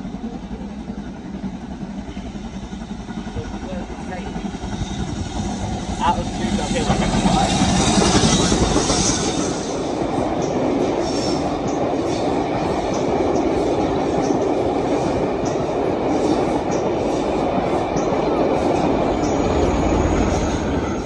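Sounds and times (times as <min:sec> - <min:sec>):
train wheels rumbling on rail: 0:00.0 - 0:21.0
wheels clicking over rail joints: 0:10.2 - 0:19.6.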